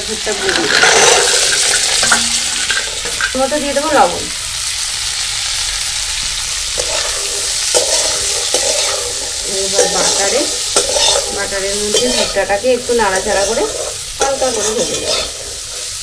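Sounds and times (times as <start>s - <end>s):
corn sizzling in a wok: 0.0s - 16.0s
spatula scraping a pan: 6.8s - 16.0s.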